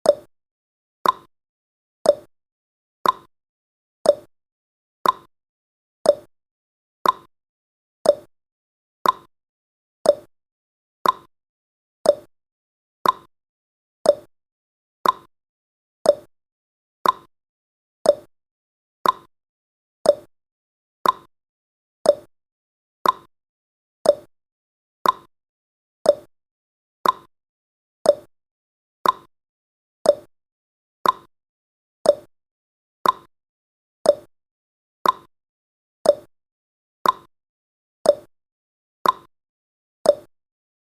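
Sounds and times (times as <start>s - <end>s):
timer ticking: 0.0s - 0.3s, 1.0s - 1.3s, 2.0s - 2.3s, 3.0s - 3.3s, 4.0s - 4.3s, 5.0s - 5.3s, 6.0s - 6.3s, 7.0s - 7.3s, 8.0s - 8.3s, 9.0s - 9.3s, 10.0s - 10.3s, 11.0s - 11.3s, 12.0s - 12.3s, 13.0s - 13.3s, 14.0s - 14.3s, 15.0s - 15.3s, 16.0s - 16.3s, 17.0s - 17.3s, 18.0s - 18.3s, 19.0s - 19.3s, 20.0s - 20.3s, 21.0s - 21.3s, 22.0s - 22.3s, 23.0s - 23.3s, 24.0s - 24.3s, 25.0s - 25.3s, 26.0s - 26.3s, 27.0s - 27.3s, 28.0s - 28.3s, 29.0s - 29.3s, 30.0s - 30.3s, 31.0s - 31.3s, 32.0s - 32.3s, 33.0s - 33.3s, 34.0s - 34.3s, 35.0s - 35.3s, 36.0s - 36.3s, 37.0s - 37.3s, 38.0s - 38.3s, 39.0s - 39.3s, 40.1s - 40.3s.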